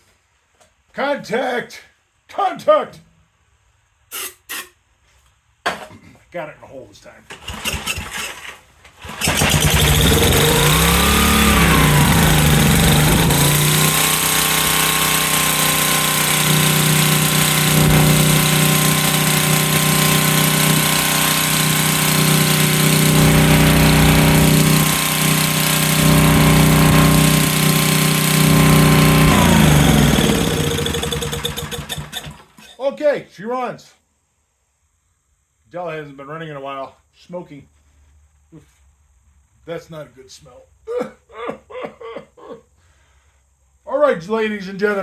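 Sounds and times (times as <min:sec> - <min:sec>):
generator engine surging: 0:09.0 - 0:32.4.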